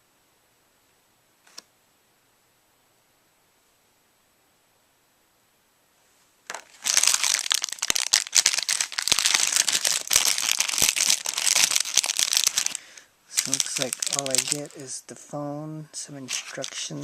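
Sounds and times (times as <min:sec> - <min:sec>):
packaging crinkling: 0:06.5 - 0:14.9, 0:16.2 - 0:17.0.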